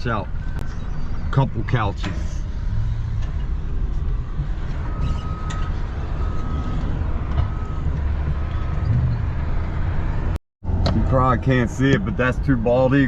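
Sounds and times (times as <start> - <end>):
vehicle engine rumbling: 0.0 - 13.0
reversing alarm beeping: 4.8 - 9.2.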